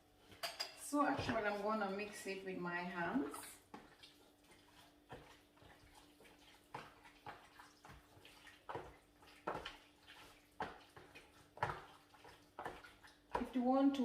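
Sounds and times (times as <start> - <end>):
hands squelching raw chicken: 3.6 - 13.4.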